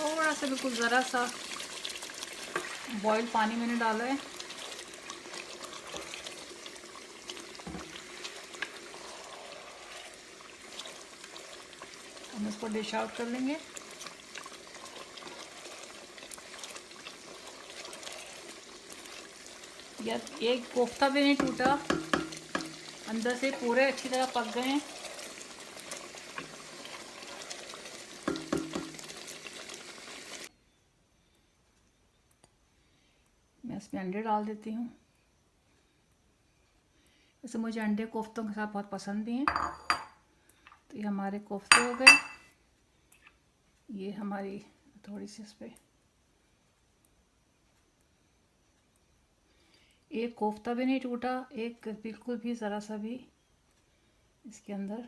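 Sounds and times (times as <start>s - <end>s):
curry bubbling in a pan: 0.0s - 30.5s
utensil knocking against pot: 21.4s - 22.8s, 28.3s - 29.0s, 39.5s - 40.1s, 41.7s - 42.4s.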